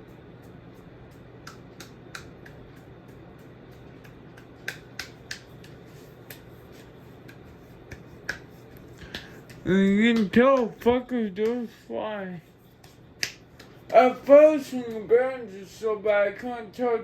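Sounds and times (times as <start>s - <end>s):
ceiling fan hum and air rush: 0.0s - 17.0s.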